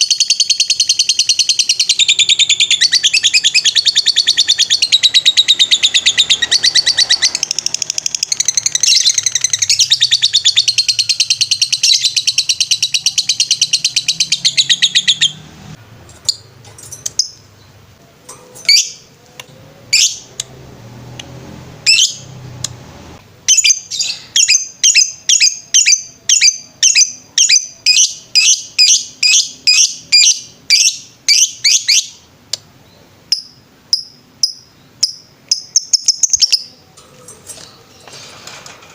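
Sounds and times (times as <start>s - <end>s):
lovebird chattering trill and chirps: 0.0s - 15.4s, 16.2s - 17.8s, 18.6s - 19.1s, 21.8s - 22.3s, 23.5s - 32.3s, 33.3s - 36.8s.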